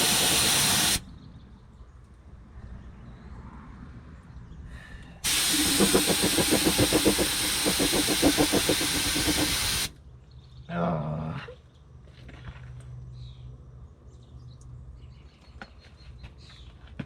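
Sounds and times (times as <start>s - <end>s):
spray gun hissing: 0.0s - 1.0s, 5.2s - 9.9s.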